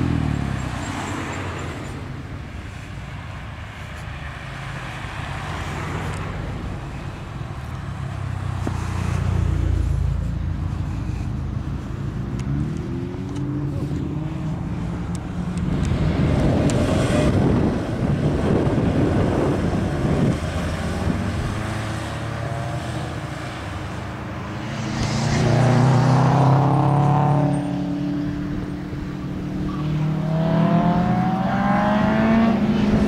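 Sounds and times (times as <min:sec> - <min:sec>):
car engine revving: 0:12.2 - 0:33.0
rushing noise: 0:14.1 - 0:27.7.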